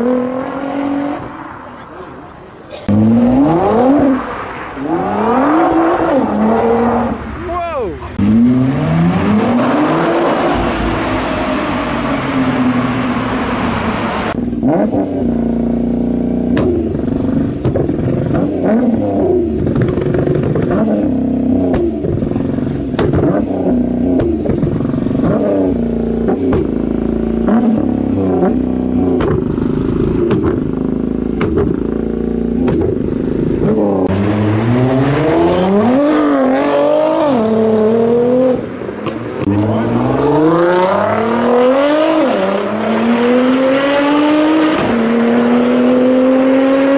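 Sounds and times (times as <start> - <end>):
car engine revving: 0.0 - 46.9
exhaust pops and crackles: 16.5 - 18.6, 19.6 - 20.9, 21.6 - 23.5, 24.1 - 25.5, 26.2 - 27.8, 28.4 - 33.8.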